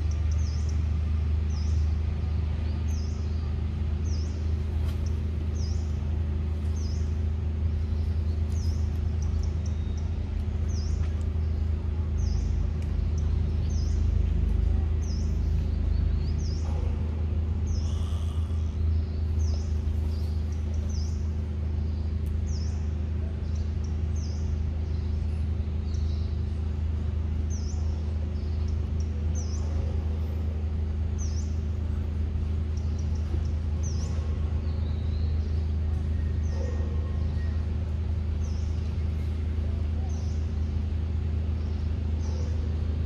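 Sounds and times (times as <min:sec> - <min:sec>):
bird chirping: 0:00.0 - 0:06.0, 0:06.6 - 0:14.3, 0:15.0 - 0:26.6, 0:32.7 - 0:37.7
low hum: 0:00.0 - 0:43.0.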